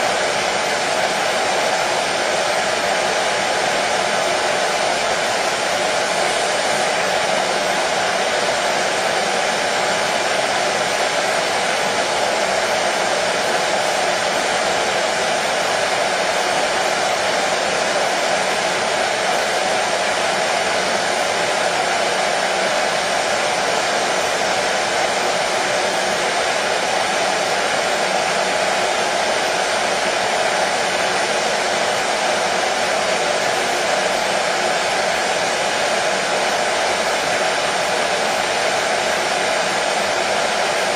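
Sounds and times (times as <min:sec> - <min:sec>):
hair dryer blowing: 0:00.0 - 0:40.9.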